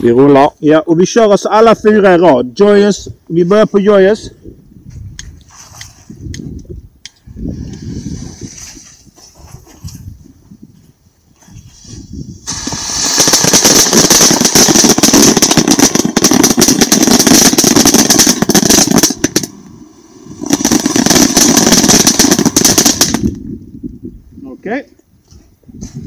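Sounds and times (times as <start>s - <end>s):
firework fountain hissing and crackling: 7.5s - 9.7s, 11.5s - 23.4s.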